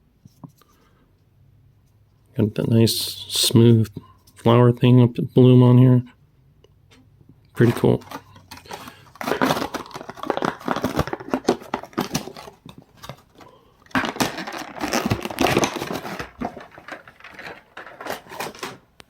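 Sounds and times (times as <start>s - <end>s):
cardboard and plastic packaging crinkling: 7.6s - 19.0s.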